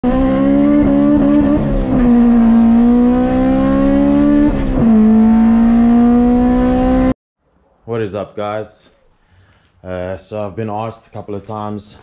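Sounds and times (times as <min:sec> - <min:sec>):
car engine revving hard: 0:00.0 - 0:07.2.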